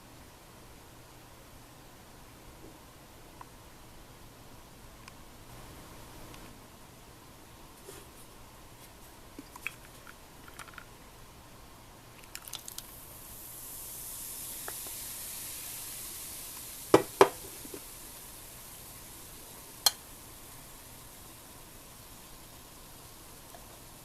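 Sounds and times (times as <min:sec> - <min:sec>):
hiss: 0:12.3 - 0:24.0.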